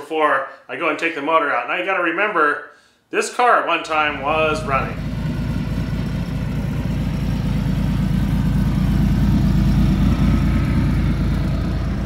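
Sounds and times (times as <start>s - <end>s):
car engine running: 4.0s - 12.0s.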